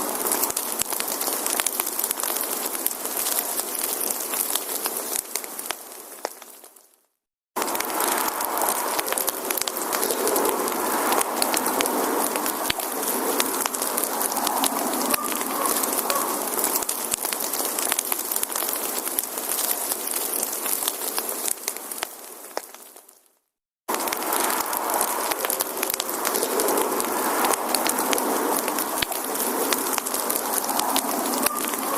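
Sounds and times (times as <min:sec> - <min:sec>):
wood fire crackling: 0:00.0 - 0:07.0, 0:07.6 - 0:31.9
steady hiss: 0:07.6 - 0:22.9, 0:23.9 - 0:31.9.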